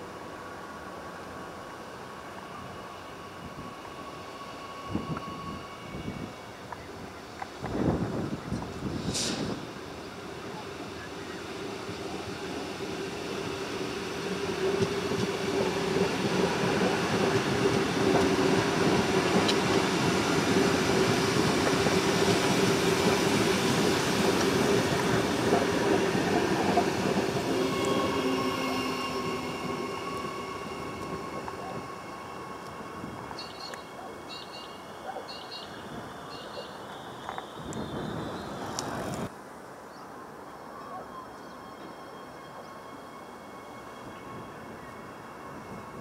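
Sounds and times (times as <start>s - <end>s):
train wheels rumbling: 2.3s - 34.8s
higher steady tones: 10.2s - 34.8s.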